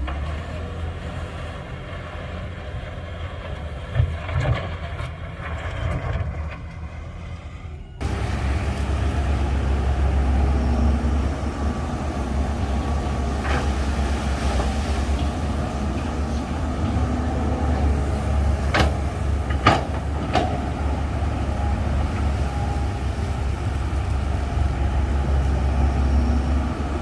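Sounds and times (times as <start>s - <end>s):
heavy diesel engine running: 8.0s - 27.0s.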